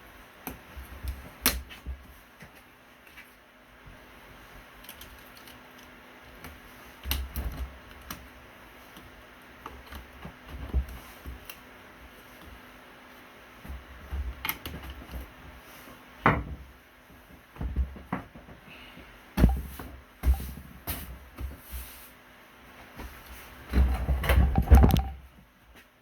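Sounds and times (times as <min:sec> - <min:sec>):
handling clicks and knocks: 0:24.2 - 0:25.2.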